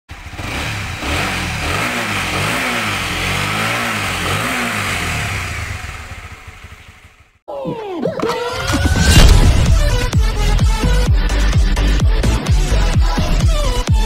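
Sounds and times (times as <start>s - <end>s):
motorcycle engine revving: 0.1s - 7.4s.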